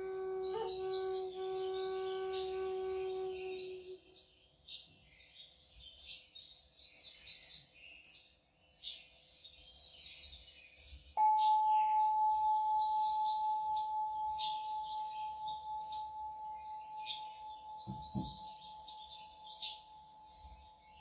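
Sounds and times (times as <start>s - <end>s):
singing bowl ringing: 0.0s - 3.8s, 11.2s - 21.0s
birds chirping and twittering: 0.0s - 21.0s.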